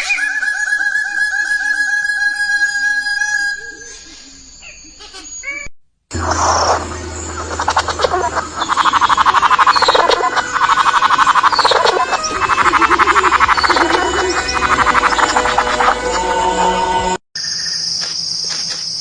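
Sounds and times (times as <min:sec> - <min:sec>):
animal rapid pulsed trilling: 0:06.1 - 0:17.0
steady low hum: 0:06.1 - 0:17.2.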